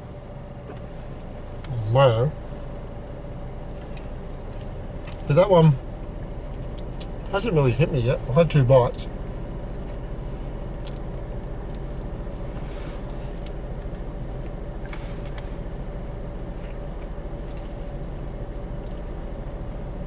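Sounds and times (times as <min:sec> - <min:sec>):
low hum: 0:00.0 - 0:20.0
faint clicks of chewing: 0:03.8 - 0:05.3, 0:06.5 - 0:07.3, 0:10.8 - 0:12.1, 0:16.4 - 0:18.2, 0:18.8 - 0:19.1.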